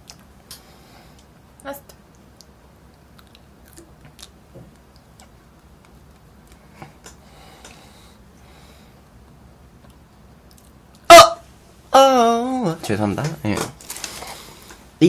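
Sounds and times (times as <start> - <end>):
chewing french fries: 0.0 - 0.6, 2.1 - 7.2, 9.8 - 11.1
soft mouth clicks: 2.1 - 7.8.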